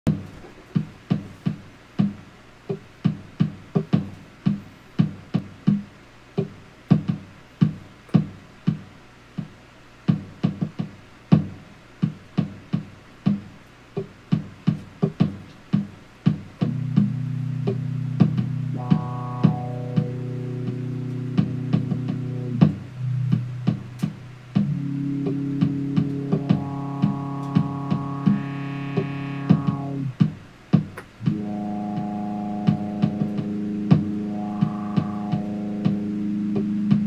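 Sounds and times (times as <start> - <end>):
held synth chord: 16.6 - 30.1, 31.2 - 37.0
plucked synth notes: 16.6 - 30.2, 31.2 - 37.0
high sustained tones: 16.7 - 30.1, 31.2 - 37.0.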